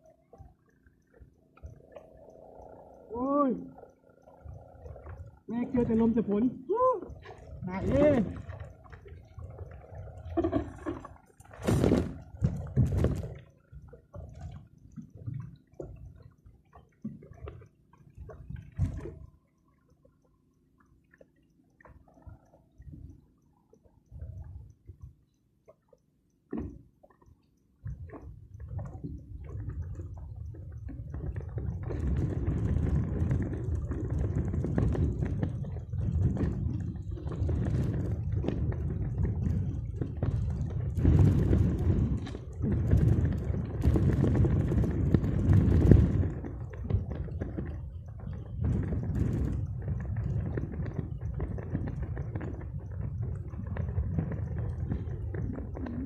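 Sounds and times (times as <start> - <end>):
wind buffeting microphone: 1.8 - 14.6, 27.8 - 56.0.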